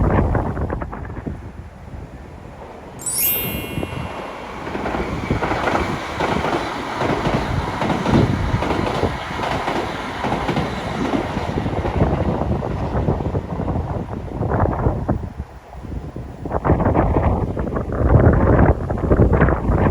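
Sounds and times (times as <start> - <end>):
high-speed train passing: 3.8 - 14.3.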